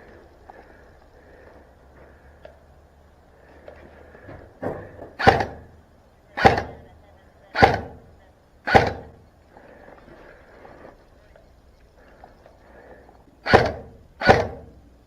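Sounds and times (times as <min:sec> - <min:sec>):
airsoft gun shots: 0:05.2 - 0:05.8, 0:06.4 - 0:06.9, 0:07.5 - 0:09.2, 0:13.4 - 0:14.8.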